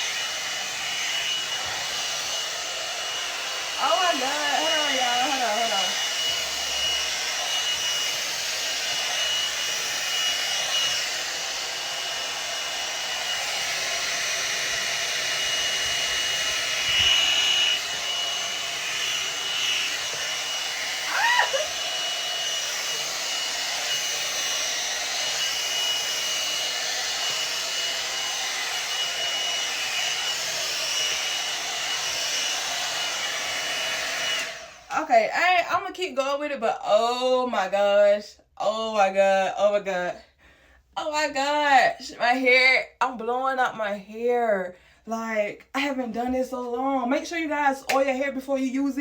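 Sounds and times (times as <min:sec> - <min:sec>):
hair dryer brush blowing: 0:00.0 - 0:36.4.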